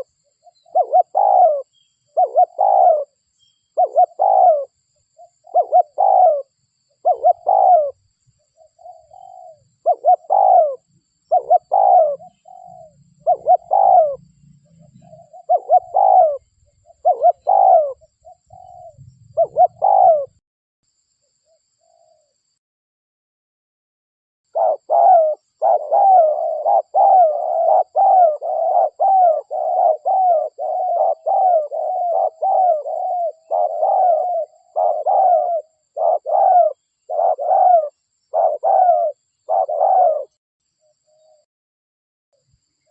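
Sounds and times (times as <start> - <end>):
dove cooing: 0.0 - 3.2, 3.8 - 20.4, 24.5 - 40.4.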